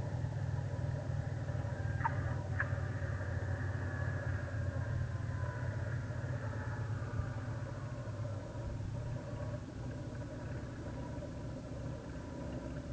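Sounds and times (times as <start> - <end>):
piston aircraft engine running: 0.0 - 12.9.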